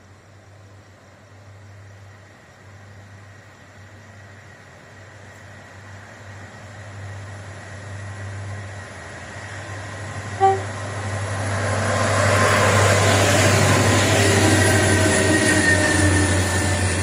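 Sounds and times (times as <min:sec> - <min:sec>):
train passing: 0:00.0 - 0:17.0
train horn toot: 0:10.3 - 0:11.0.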